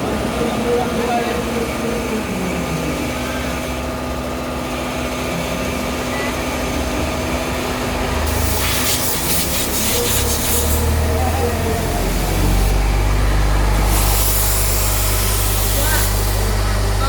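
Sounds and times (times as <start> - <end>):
machine hum and rumble: 0.0 - 17.0
loud hissing rush: 8.2 - 17.0.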